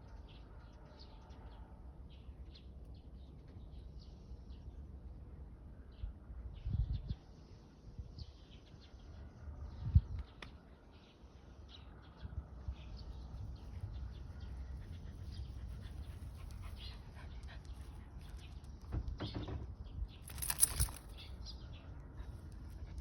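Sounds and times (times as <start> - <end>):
soft scattered noises: 13.2 - 23.0.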